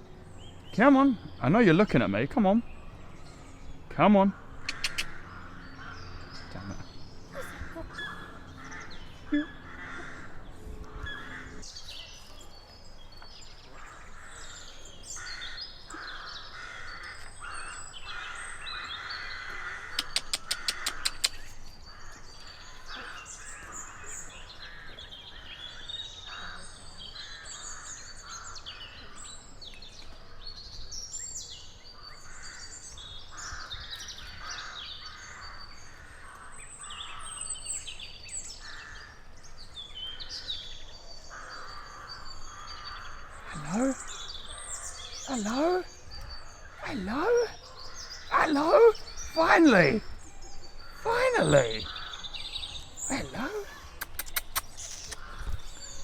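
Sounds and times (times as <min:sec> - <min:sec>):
wild birds chirping and calling: 0:00.0 - 0:56.0
sharp clicks: 0:04.6 - 0:05.2, 0:20.0 - 0:21.5, 0:54.0 - 0:55.3.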